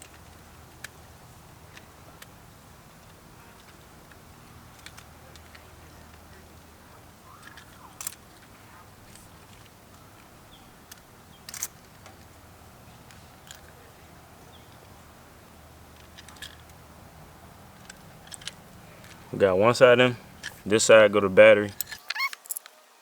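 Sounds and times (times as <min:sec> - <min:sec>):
faint low hum: 0:00.0 - 0:22.0
sharp clicks of cable fittings: 0:01.6 - 0:06.2.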